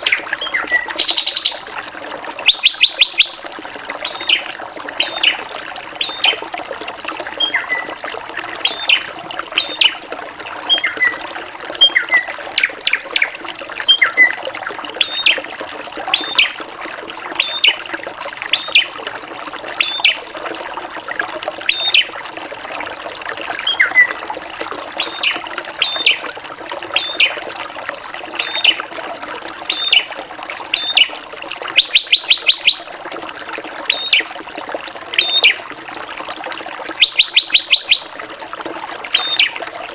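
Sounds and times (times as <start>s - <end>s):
drongo whistled calls: 0.0s - 1.6s, 2.4s - 3.4s, 4.0s - 4.4s, 5.0s - 5.4s, 6.0s - 6.3s, 7.4s - 7.9s, 8.6s - 9.0s, 9.6s - 10.0s, 10.6s - 11.2s, 11.8s - 14.4s, 15.0s - 15.4s, 16.1s - 16.5s, 17.4s - 17.8s, 18.5s - 18.9s, 19.8s - 20.2s, 21.7s - 22.1s, 23.6s - 24.2s, 25.0s - 26.2s, 27.0s - 27.4s, 28.4s - 28.8s, 29.7s - 30.1s, 30.7s - 31.1s, 31.7s - 32.9s, 33.9s - 34.3s, 35.2s - 35.6s, 37.0s - 38.2s, 39.1s - 39.6s.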